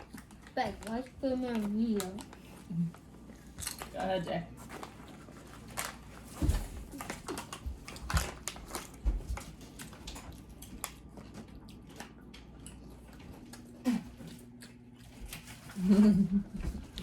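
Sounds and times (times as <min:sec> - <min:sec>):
chips being crunched and chewed: 0:06.9 - 0:15.8.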